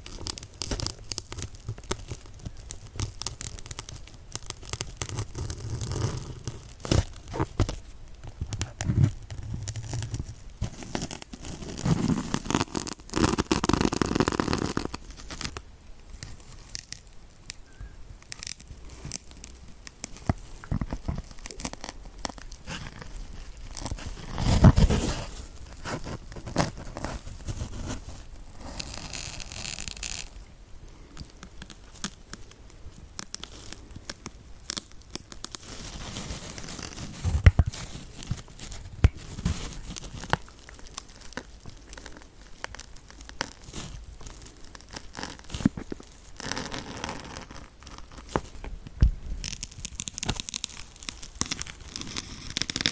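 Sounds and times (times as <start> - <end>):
needles pushed into sponge crackling: 18.5 - 30.4.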